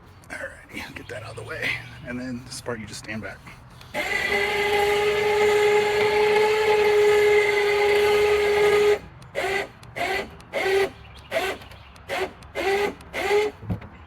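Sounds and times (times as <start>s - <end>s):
electric winch whining: 3.8s - 13.6s.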